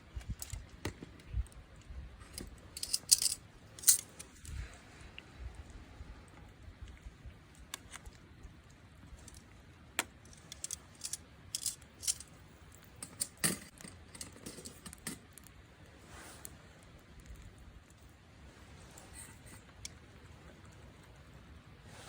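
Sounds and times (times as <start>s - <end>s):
small hard objects clicking: 9.2s - 12.2s.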